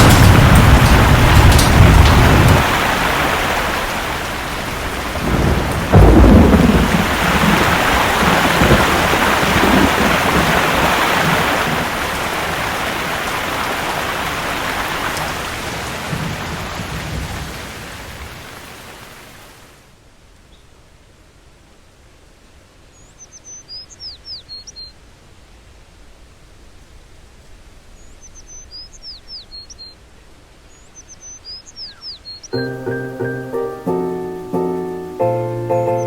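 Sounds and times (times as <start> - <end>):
loud thunderclap: 0.0 - 12.6, 15.7 - 18.4
thunder rumbling: 0.0 - 18.6
heavy rain hiss: 0.0 - 23.2.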